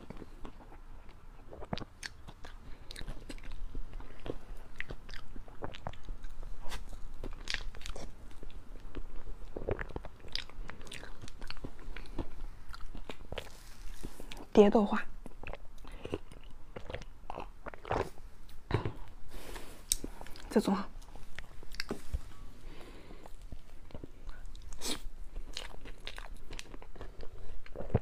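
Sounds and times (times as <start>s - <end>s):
wet chewing mouth clicks: 0.1s - 14.5s.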